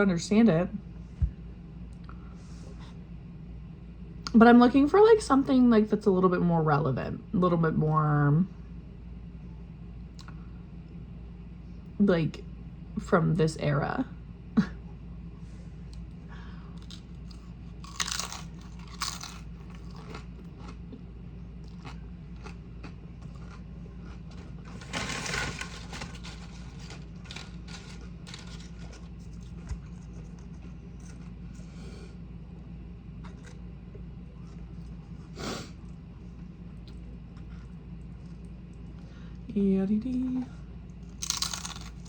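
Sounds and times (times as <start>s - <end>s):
steady low hum: 0.0s - 42.0s
crunching tortilla chips: 16.8s - 21.0s, 21.6s - 31.8s, 41.0s - 42.0s.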